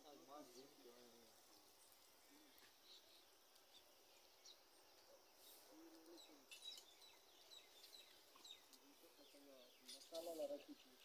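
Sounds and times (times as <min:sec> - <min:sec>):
faint bird chirps: 0:02.2 - 0:11.0.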